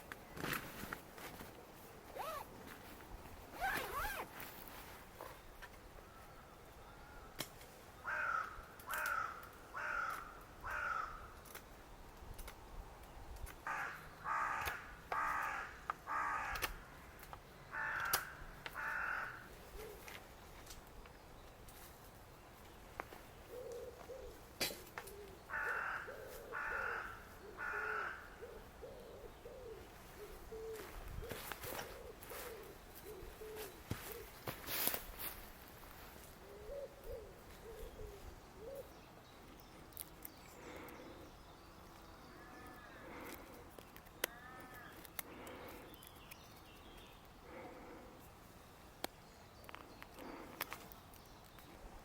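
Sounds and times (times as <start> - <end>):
crow cawing: 8.0 - 11.3, 13.6 - 17.1, 17.7 - 19.6, 25.5 - 28.6, 44.3 - 45.0.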